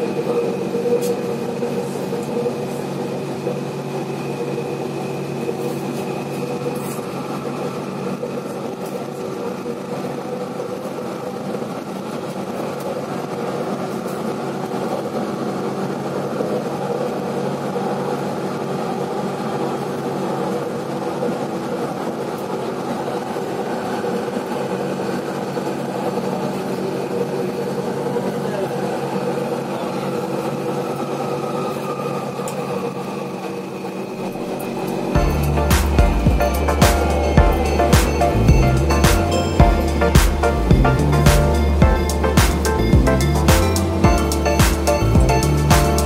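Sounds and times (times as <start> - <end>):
train hum with held tones: 0.0 - 46.0
train rumbling: 0.0 - 46.0.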